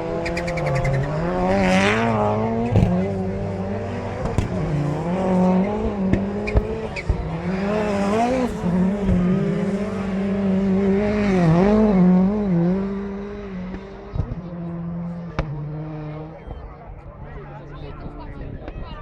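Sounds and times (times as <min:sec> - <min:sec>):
racing car engines: 0:00.0 - 0:19.0.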